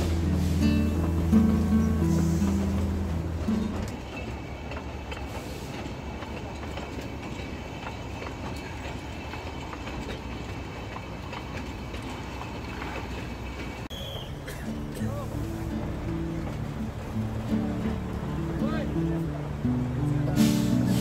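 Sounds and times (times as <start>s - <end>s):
background music: 0.0s - 3.9s, 14.4s - 21.0s
train wheels on rails: 0.0s - 21.0s.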